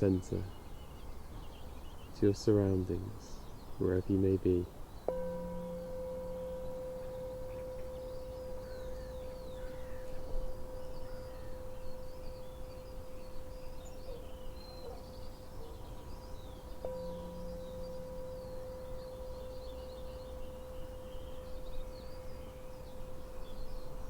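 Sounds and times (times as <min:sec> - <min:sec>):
faint birds chirping: 0:00.0 - 0:24.0
tuning fork ringing: 0:05.1 - 0:15.3, 0:16.7 - 0:24.0.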